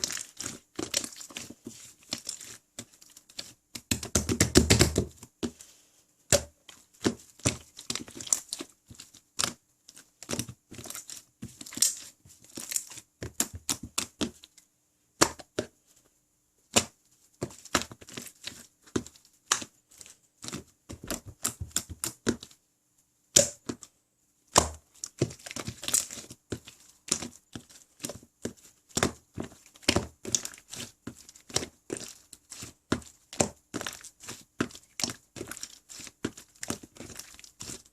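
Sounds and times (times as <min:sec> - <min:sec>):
slime being squished by hand: 0:24.5 - 0:37.9.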